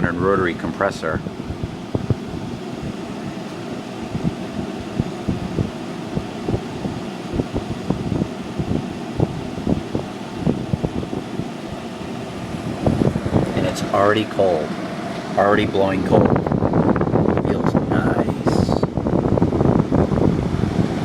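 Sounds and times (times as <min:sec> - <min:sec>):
air conditioner fan running: 0:00.0 - 0:21.0
soft low thumps: 0:04.1 - 0:11.2.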